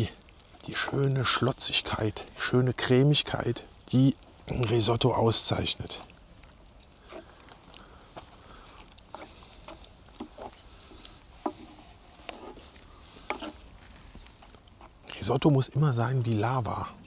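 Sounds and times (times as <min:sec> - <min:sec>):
risotto squelching while stirred: 0:00.0 - 0:15.3.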